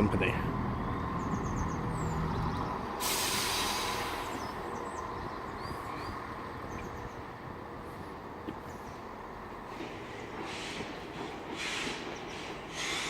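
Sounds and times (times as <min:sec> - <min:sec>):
train low running sound: 0:00.0 - 0:13.0
small birds chirping: 0:00.5 - 0:03.0, 0:04.2 - 0:07.4
loud hiss of released air: 0:03.0 - 0:04.4, 0:10.4 - 0:10.9, 0:11.6 - 0:13.0.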